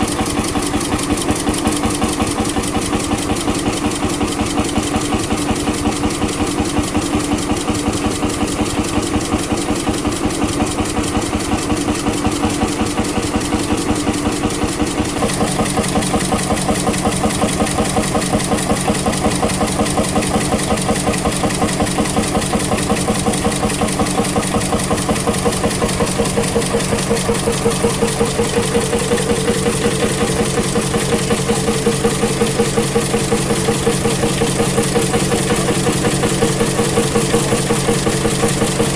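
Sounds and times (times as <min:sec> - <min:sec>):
vintage engine running: 0:00.0 - 0:38.9.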